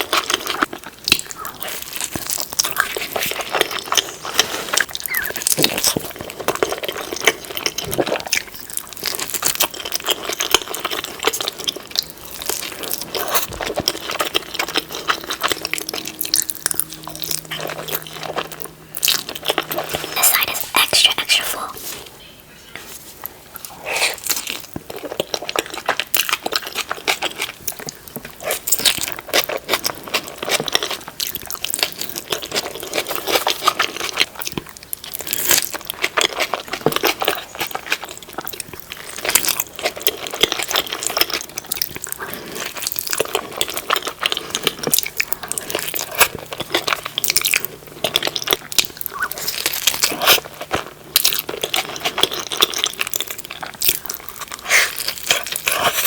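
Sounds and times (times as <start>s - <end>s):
chewing with crunches: 0.0s - 56.0s
wet mouth clicks: 4.8s - 6.0s.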